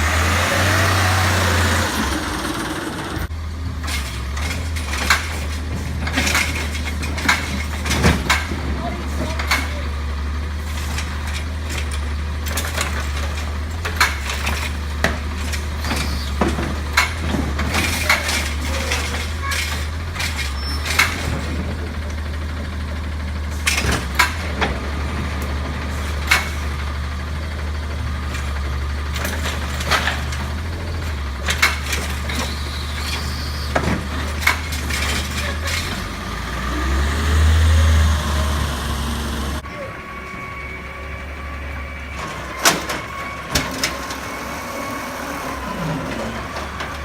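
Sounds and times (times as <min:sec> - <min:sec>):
garbage truck engine running: 0:00.0 - 0:47.0
sharp clanks and knocks: 0:03.7 - 0:27.5, 0:28.2 - 0:37.0.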